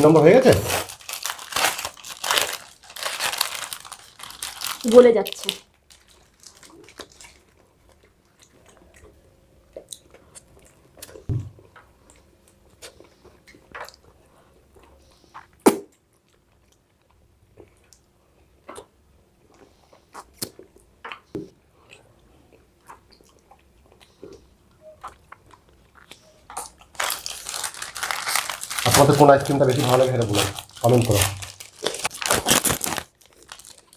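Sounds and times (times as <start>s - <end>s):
mouth clicks and smacks eating: 17.6s - 18.9s, 19.5s - 26.8s.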